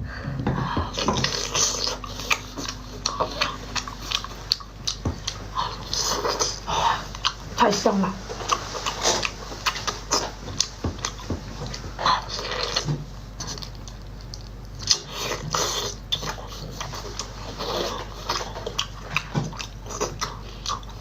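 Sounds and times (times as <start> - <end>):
person chewing and biting: 0.8 - 7.5, 8.3 - 21.0.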